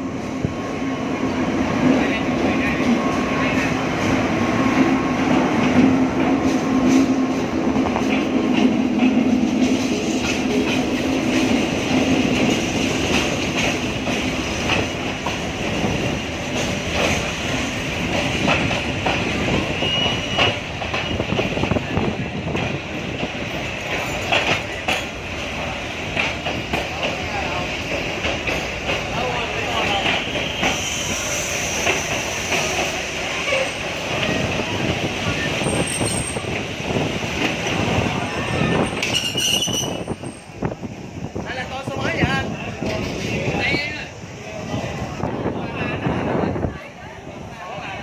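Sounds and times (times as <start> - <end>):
train wheels clicking over rails: 0.1 - 41.3
brief high squeal: 19.7 - 20.6, 39.0 - 40.4.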